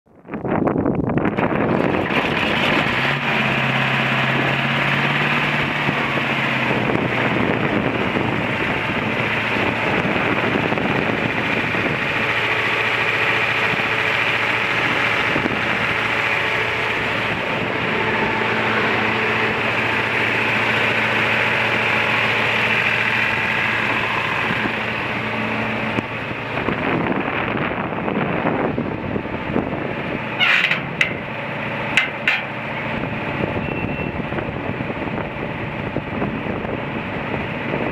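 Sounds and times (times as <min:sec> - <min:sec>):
wind on microphone: 0:00.1 - 0:03.0, 0:04.2 - 0:12.4, 0:14.6 - 0:20.4, 0:23.2 - 0:31.2, 0:32.9 - 0:37.9
tractor diesel engine idling: 0:01.1 - 0:37.9.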